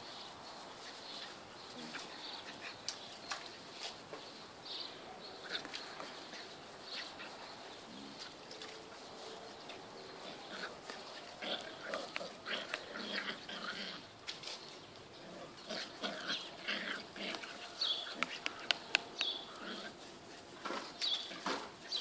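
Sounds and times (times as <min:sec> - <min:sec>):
birds chirping: 0:00.0 - 0:22.0
sharp clicks: 0:18.2 - 0:19.4.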